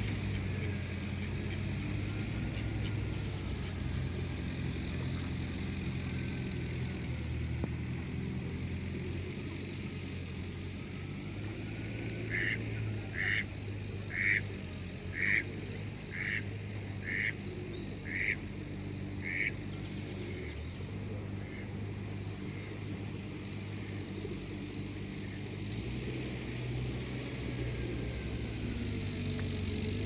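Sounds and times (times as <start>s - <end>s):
crow calling: 12.3s - 13.4s, 19.2s - 19.5s.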